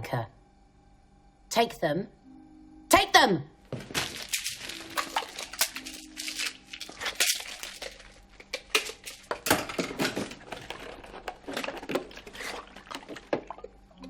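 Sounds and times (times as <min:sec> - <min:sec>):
pill container handling: 0:03.8 - 0:13.5.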